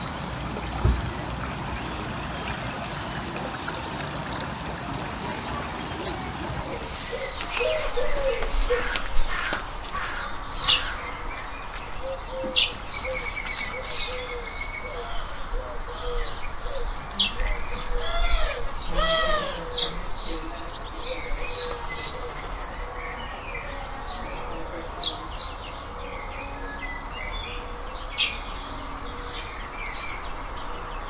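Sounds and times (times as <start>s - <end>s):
songbirds chirping: 0.0s - 31.0s
low arching bird notes: 4.3s - 31.0s.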